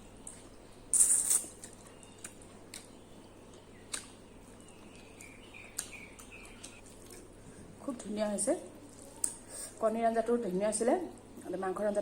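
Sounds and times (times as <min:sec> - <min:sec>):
chewing mouth clicks: 0:00.2 - 0:07.3
wet slurping or crunching: 0:00.9 - 0:01.8.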